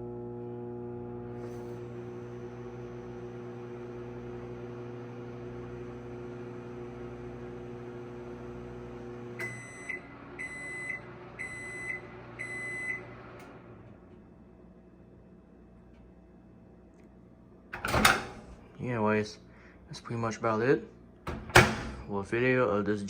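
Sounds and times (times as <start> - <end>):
microwave oven humming: 0.0 - 19.8, 21.0 - 22.2
microwave click: 8.3 - 13.6, 17.8 - 18.6, 21.3 - 22.1
microwave beeps: 8.9 - 13.4.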